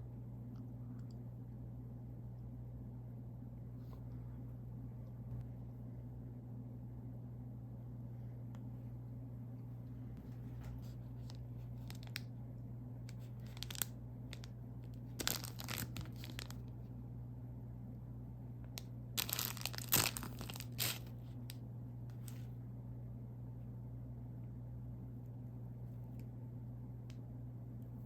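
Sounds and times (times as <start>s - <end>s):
steady low hum: 0.0s - 28.0s
plastic wrapper crinkling: 10.8s - 12.3s, 13.1s - 16.7s, 19.2s - 21.2s.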